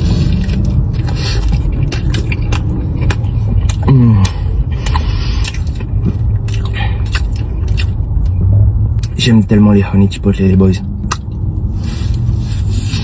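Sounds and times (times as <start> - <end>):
person biting and chewing: 0.0 - 8.4, 11.0 - 13.0
steady low rumble: 0.0 - 13.0.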